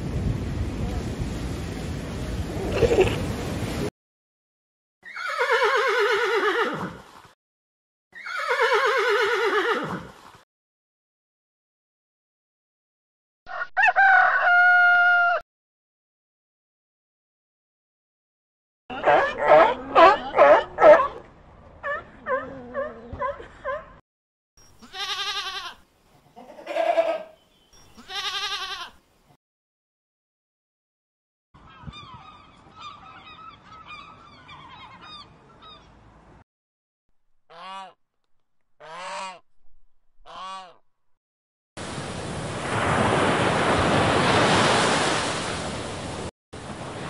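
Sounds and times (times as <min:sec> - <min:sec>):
horse whinnying: 0:05.0 - 0:07.1, 0:08.2 - 0:10.2
sheep bleating: 0:24.8 - 0:25.8, 0:26.4 - 0:27.4, 0:28.0 - 0:29.0.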